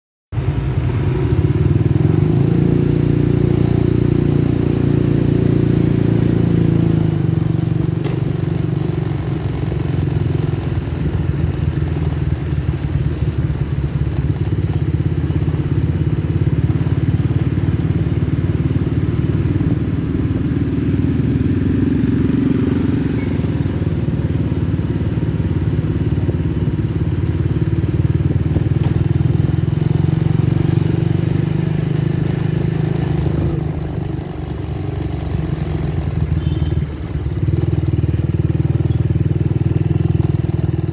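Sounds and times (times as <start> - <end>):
motorcycle engine running: 0.4 - 40.9.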